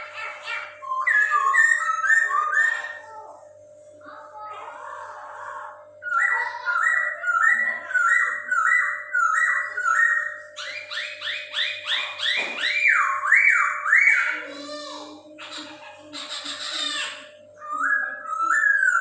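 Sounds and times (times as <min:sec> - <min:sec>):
bird whistling song: 0:00.0 - 0:03.1, 0:06.0 - 0:14.4, 0:17.6 - 0:19.0.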